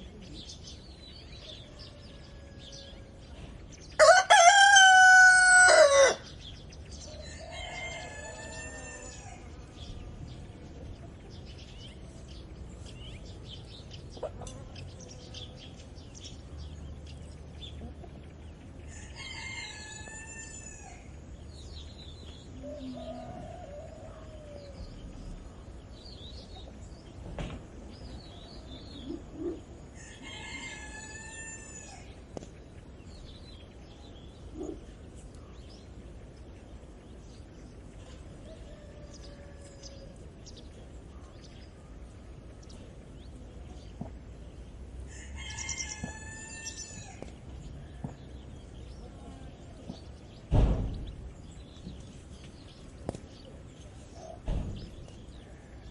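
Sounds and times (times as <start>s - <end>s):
small birds chirping: 0.0s - 4.1s, 5.9s - 55.9s
roosters crowing: 1.4s - 9.8s, 18.8s - 21.8s, 22.6s - 25.4s, 29.4s - 32.3s, 37.9s - 40.9s, 45.0s - 48.7s
sharp knock: 50.5s - 51.1s.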